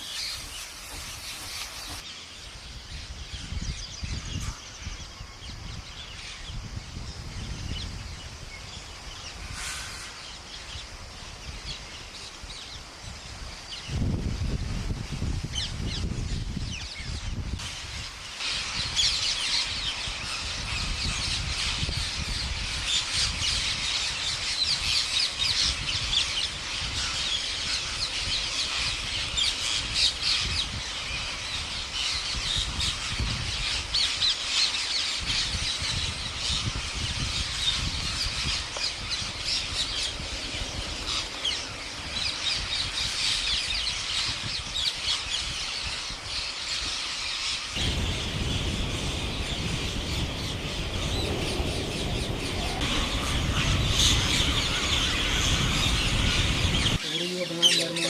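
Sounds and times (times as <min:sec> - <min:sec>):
flock of parrots squawking: 0:40.7 - 0:58.0
low rumble: 0:47.8 - 0:57.0.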